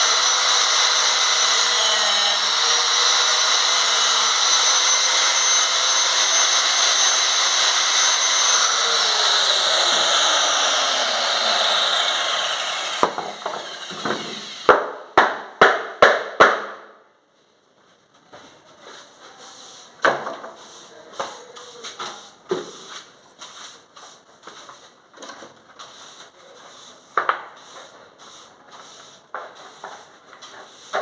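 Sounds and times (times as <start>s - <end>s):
power tool cutting plastic: 0.0s - 14.8s
sharp knocks: 12.7s - 15.3s.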